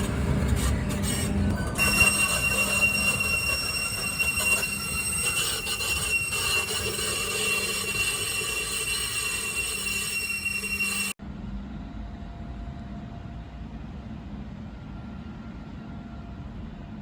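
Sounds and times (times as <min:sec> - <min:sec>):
tram wheels squealing on rails: 0:00.0 - 0:11.2
tram rolling rumble: 0:00.0 - 0:17.0.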